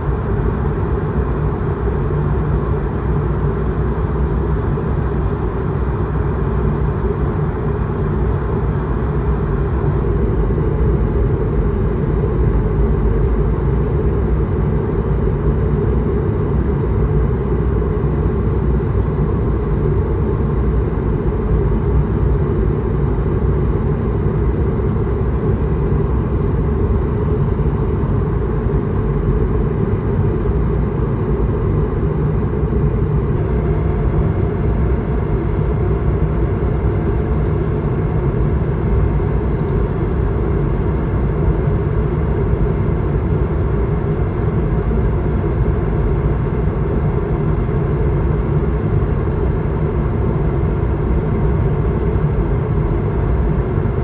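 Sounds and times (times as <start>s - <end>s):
airplane cabin engine rumble: 0.0s - 54.0s
faint high whine: 18.4s - 48.0s.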